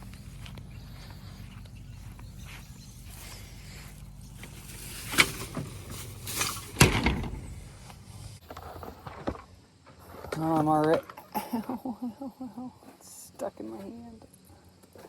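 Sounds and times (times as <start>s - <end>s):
low engine hum: 0.0s - 8.4s
knocks and rattling handling noises: 5.0s - 8.0s.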